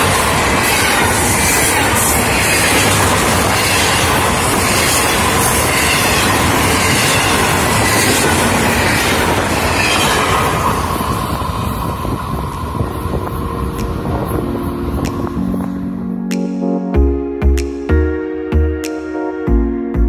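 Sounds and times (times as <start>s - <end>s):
train cars rattling: 0.0s - 15.9s
train wheels on rail: 0.0s - 16.0s.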